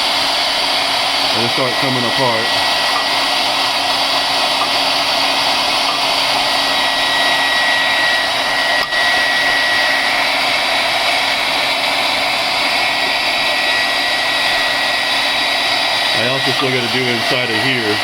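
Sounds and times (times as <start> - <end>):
hair dryer blowing: 0.0 - 18.0.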